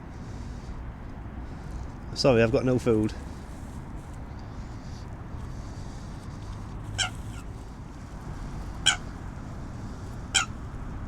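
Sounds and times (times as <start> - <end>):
low background noise: 0.0 - 11.0
waterbird calls: 6.9 - 7.5, 8.3 - 10.6.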